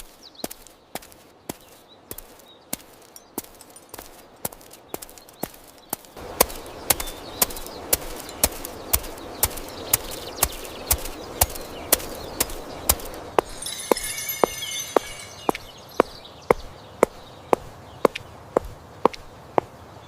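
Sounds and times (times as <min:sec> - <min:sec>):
high bird chirping: 0:13.5 - 0:16.7.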